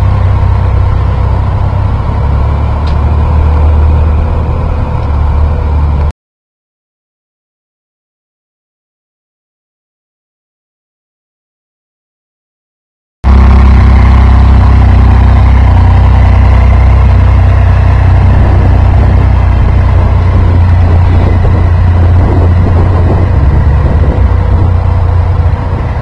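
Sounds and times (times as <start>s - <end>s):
motorcycle engine running: 0.0s - 6.1s, 13.3s - 26.0s.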